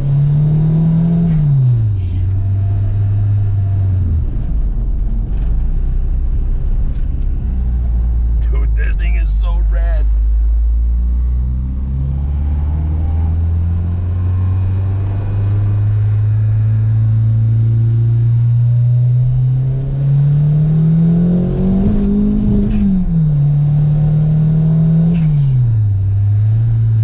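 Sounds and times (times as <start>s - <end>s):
car engine accelerating: 10.0s - 27.0s.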